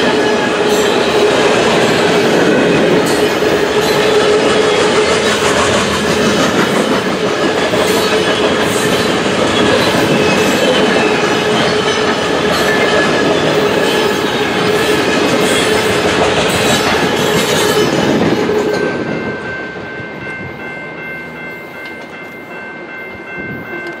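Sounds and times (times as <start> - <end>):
freight train rolling past: 0.0 - 24.0.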